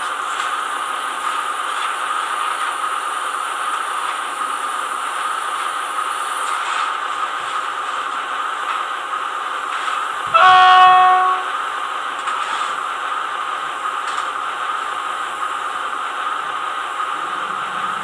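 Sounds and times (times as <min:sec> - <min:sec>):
model locomotive diesel engine sound: 0:00.0 - 0:18.0
locomotive horn blast: 0:10.3 - 0:11.7.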